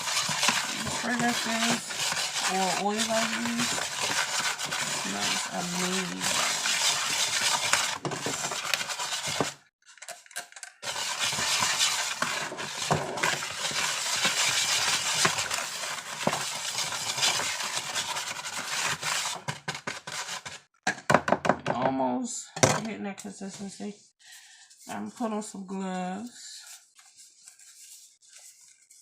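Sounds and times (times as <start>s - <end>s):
utensil stirring powder in a bowl: 0.0s - 10.1s, 10.8s - 20.7s.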